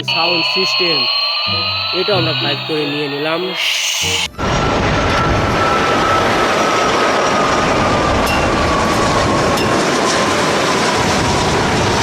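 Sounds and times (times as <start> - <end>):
faint falling whine: 0.0 - 6.8.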